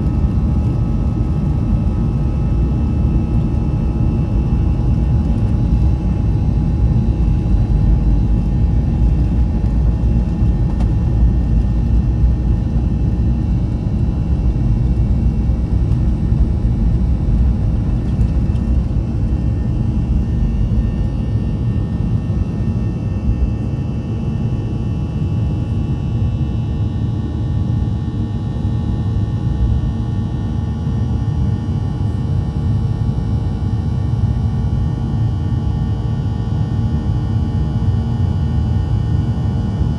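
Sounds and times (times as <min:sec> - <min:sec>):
airplane cabin rumble: 0:00.0 - 0:39.9
jet engine whine: 0:00.0 - 0:39.9.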